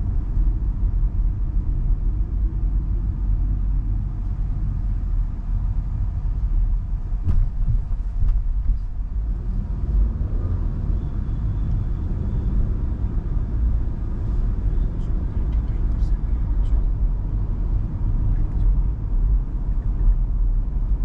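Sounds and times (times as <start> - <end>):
car road rumble: 0.0 - 21.0.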